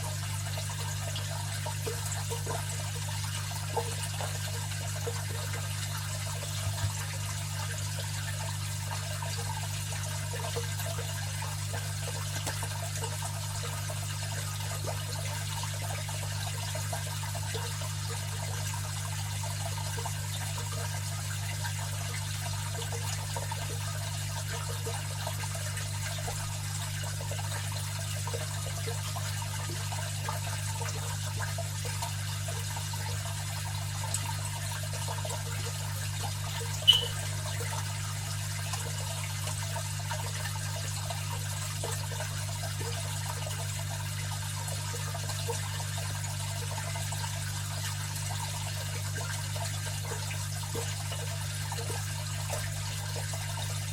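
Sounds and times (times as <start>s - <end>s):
water trickling and splashing: 0.0s - 53.9s
sharp click: 36.8s - 37.2s.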